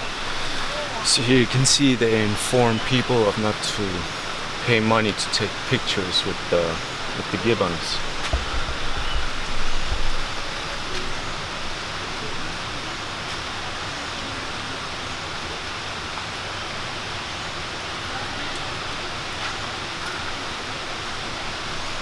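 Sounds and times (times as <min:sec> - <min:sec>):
jungle ambience hiss: 0:00.0 - 0:22.0
low thumps: 0:08.0 - 0:10.6.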